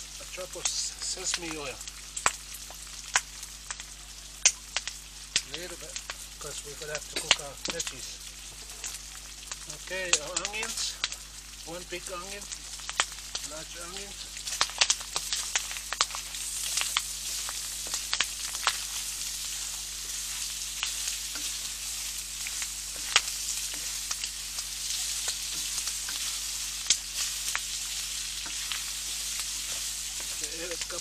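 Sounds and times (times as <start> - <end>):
food sizzling in a pan: 0.0 - 31.0
clicks and pops of stirring: 12.6 - 31.0.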